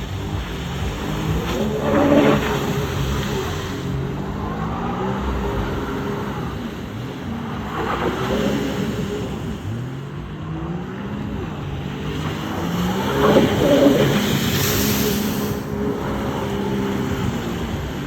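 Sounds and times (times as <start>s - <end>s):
engine accelerating and easing off: 0.0s - 18.0s.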